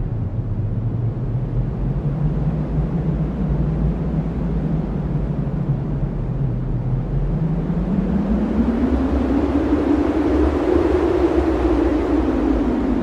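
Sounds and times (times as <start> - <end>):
strong wind blowing: 0.0 - 13.0.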